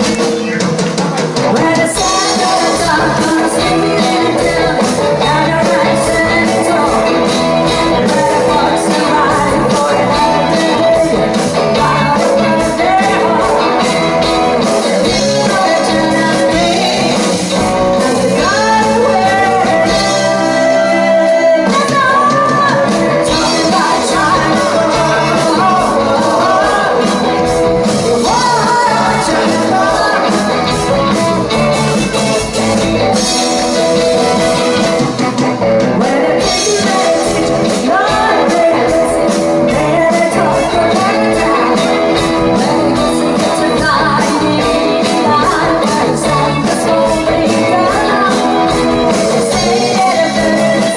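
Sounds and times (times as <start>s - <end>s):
electric guitar: 0.0s - 50.9s
person singing: 0.0s - 50.9s
rock band playing: 0.0s - 50.9s.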